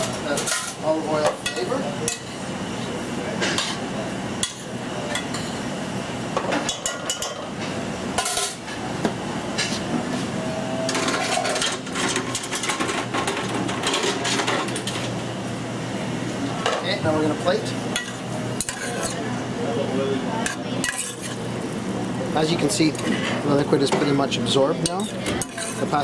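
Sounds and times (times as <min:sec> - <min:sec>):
metal pan and utensils clinking: 0:18.0 - 0:19.2, 0:20.4 - 0:21.4, 0:24.8 - 0:26.0.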